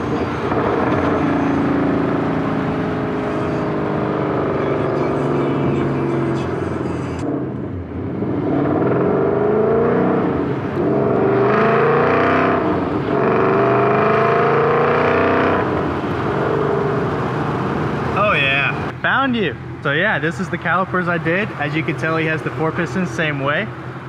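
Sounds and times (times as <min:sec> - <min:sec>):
car engine accelerating through gears: 0:00.0 - 0:18.9.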